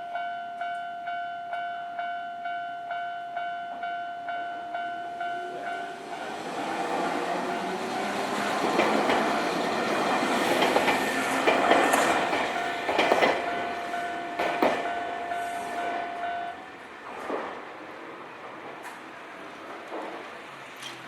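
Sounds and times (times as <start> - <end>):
level crossing warning bell: 0.0 - 17.0
train wheels clacking over joints: 6.1 - 17.6.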